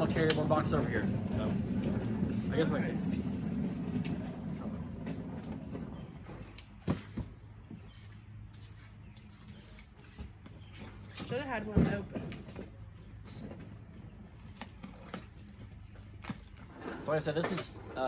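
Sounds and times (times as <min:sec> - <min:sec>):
low hum: 0:00.0 - 0:07.3.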